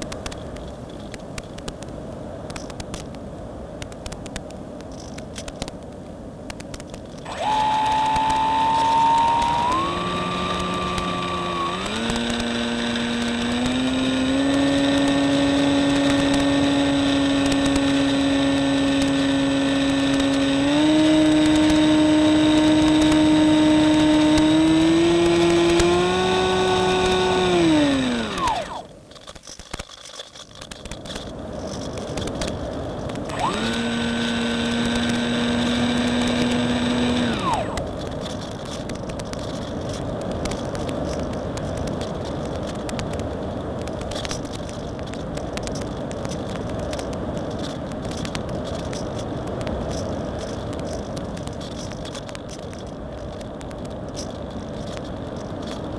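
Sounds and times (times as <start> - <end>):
electric motor whine: 7.2 - 29.0, 32.2 - 38.8.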